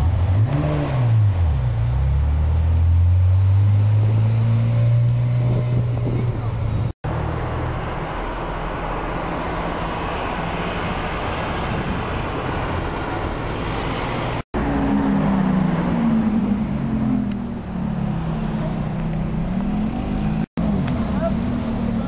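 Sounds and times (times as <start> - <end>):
street traffic: 0.0 - 22.0
car engine at low revs: 14.3 - 22.0.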